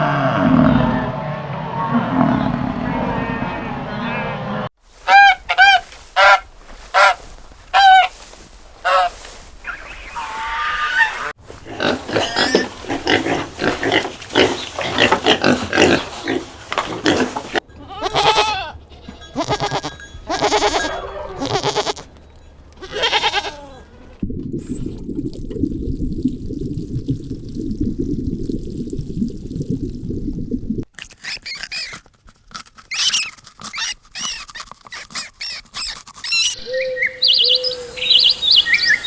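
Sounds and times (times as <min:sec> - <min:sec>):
bleating calls: 0:00.0 - 0:04.5, 0:10.0 - 0:11.4, 0:17.7 - 0:22.1, 0:22.7 - 0:24.1
goose honks: 0:05.0 - 0:07.2
pigs squealing and grunting: 0:10.2 - 0:18.8, 0:19.4 - 0:22.0, 0:22.8 - 0:24.2, 0:31.2 - 0:32.0, 0:32.9 - 0:36.8.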